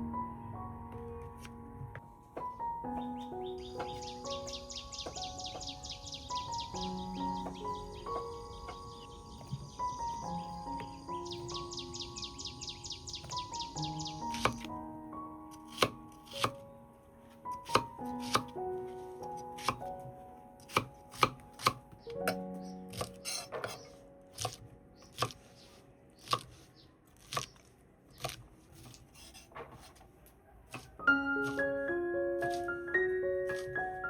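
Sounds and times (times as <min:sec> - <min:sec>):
soft background music: 0:00.0 - 0:27.5, 0:30.7 - 0:34.0
knife chopping on cutting board: 0:15.7 - 0:16.6, 0:17.7 - 0:18.5, 0:20.7 - 0:21.8, 0:24.4 - 0:24.6.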